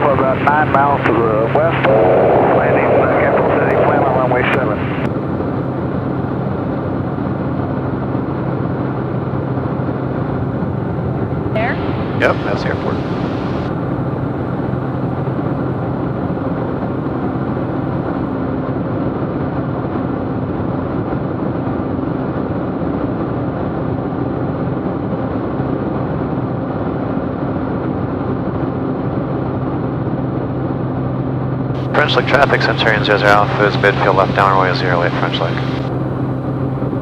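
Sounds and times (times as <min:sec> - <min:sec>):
airplane engine and propeller drone: 0:00.0 - 0:37.0.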